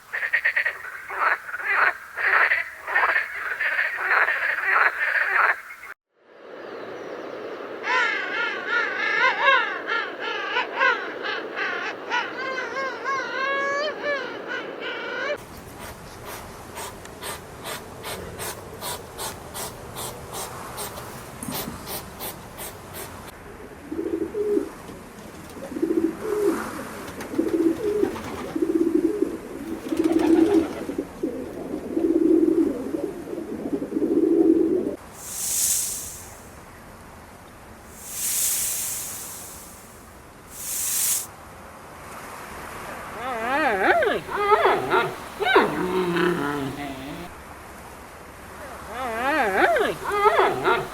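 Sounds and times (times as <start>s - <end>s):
short low bird calls: 43.2s - 47.4s, 48.9s - 50.9s.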